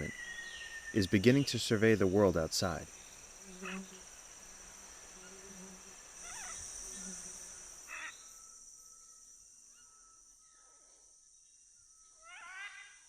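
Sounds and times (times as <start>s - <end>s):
high-pitched insect buzz: 2.6s - 13.0s.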